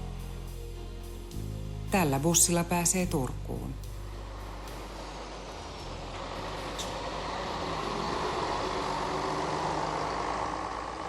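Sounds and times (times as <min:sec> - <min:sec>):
bus driving past: 0:03.7 - 0:11.0.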